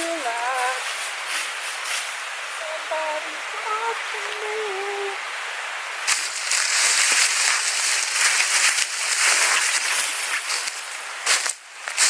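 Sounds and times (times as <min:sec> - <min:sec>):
rustling and crackling: 0:06.1 - 0:12.0.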